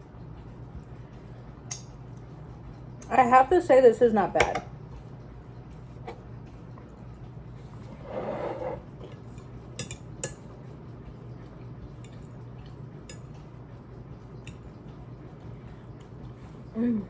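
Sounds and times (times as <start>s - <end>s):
fork scraping and clinking on plate: 7.8s - 10.4s.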